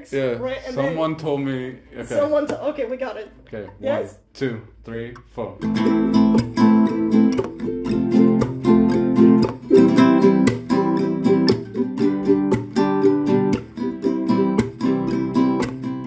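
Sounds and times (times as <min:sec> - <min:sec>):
acoustic guitar strumming: 0:05.6 - 0:16.0.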